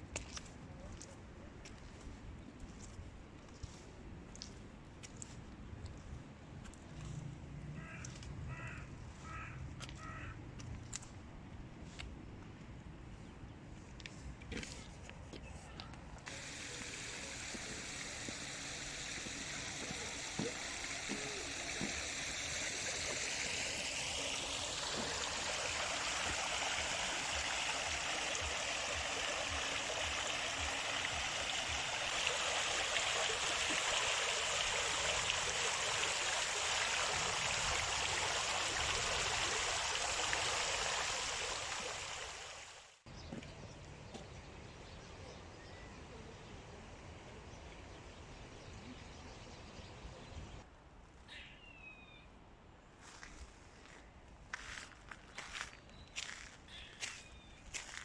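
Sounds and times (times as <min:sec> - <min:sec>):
running water rushing: 0:16.3 - 0:43.0.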